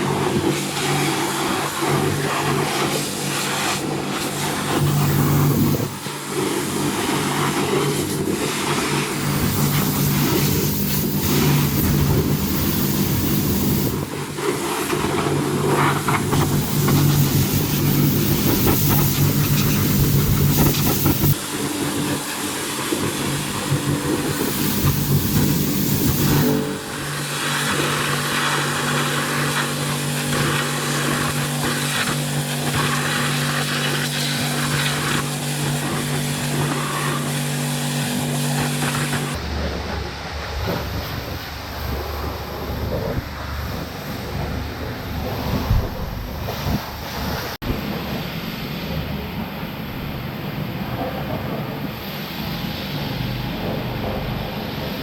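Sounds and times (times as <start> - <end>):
cleaning machine motor humming: 0.0 - 39.6
hiss of spray or suction: 0.5 - 39.4.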